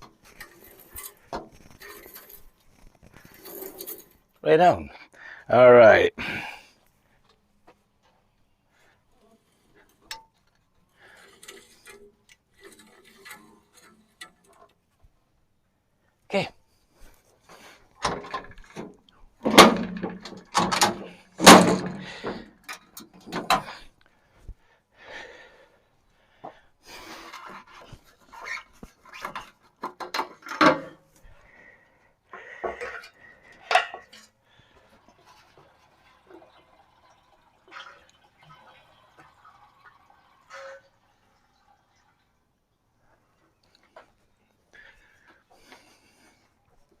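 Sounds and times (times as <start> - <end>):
objects knocking and scraping: 0.0 - 4.3, 9.2 - 15.1, 17.0 - 23.9, 26.5 - 31.5, 32.4 - 37.0.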